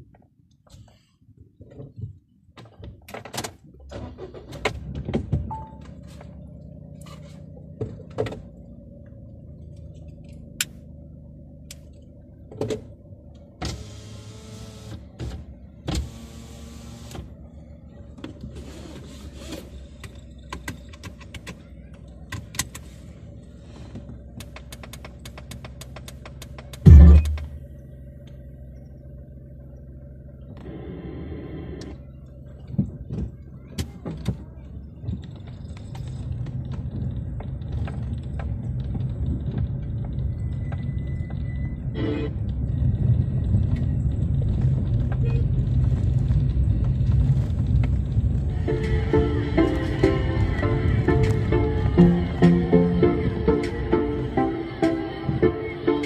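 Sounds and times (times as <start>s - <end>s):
car engine idling hum: 0.0s - 56.0s
clicks and knocks in car: 24.0s - 27.5s.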